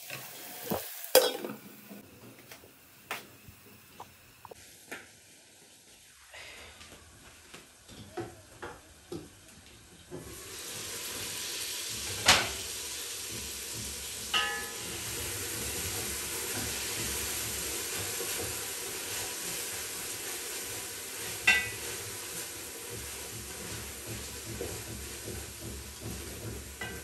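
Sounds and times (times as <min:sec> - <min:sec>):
stew sizzling in a pot: 0:00.0 - 0:27.0
metal pot clinks: 0:14.3 - 0:14.8.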